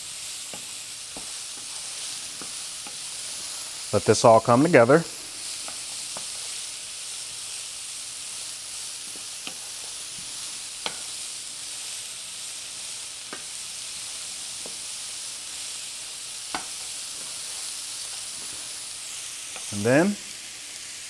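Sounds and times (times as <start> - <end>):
vegetables sizzling in a skillet: 0.0 - 21.0.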